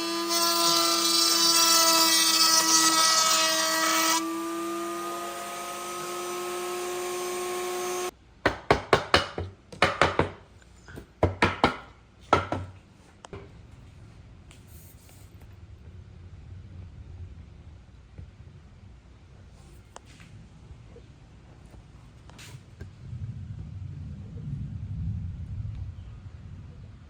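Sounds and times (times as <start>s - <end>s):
power tool motor whining: 0.0s - 8.1s
sharp knocks on wood: 8.5s - 10.4s, 11.0s - 12.8s.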